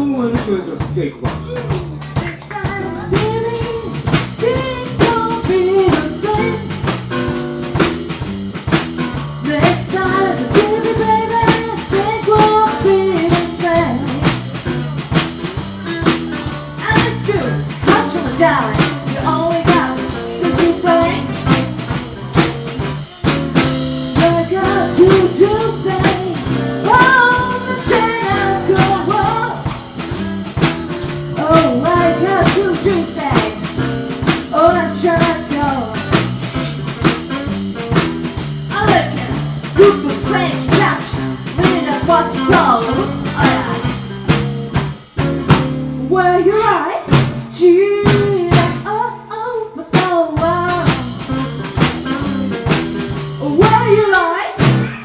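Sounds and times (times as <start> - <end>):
drum kit: 0.0 - 49.2, 49.9 - 55.0
bass guitar: 0.0 - 55.0
bending lead melody: 2.8 - 46.4.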